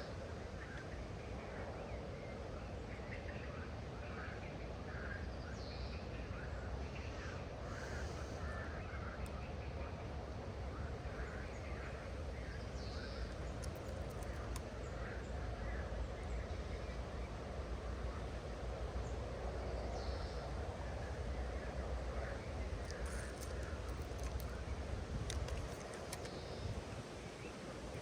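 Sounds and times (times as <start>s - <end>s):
outdoor rush with low rumble: 0.0s - 28.0s
faint clicks: 13.1s - 15.0s, 22.7s - 26.7s
birds calling: 19.0s - 27.5s.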